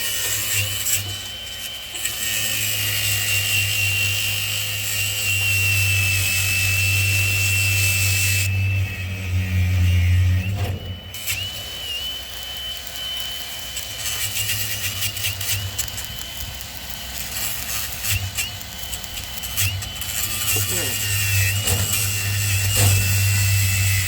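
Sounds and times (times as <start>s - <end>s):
welding arc crackling: 0.0s - 24.0s
thin high whine: 7.2s - 24.0s.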